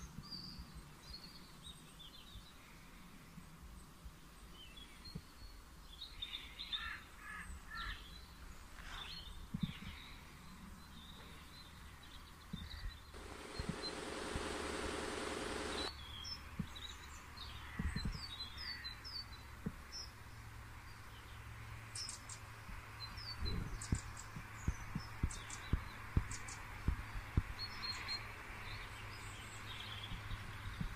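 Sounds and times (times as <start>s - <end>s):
small birds chirping: 4.4s - 20.2s, 22.0s - 30.9s
low hum: 13.2s - 15.9s.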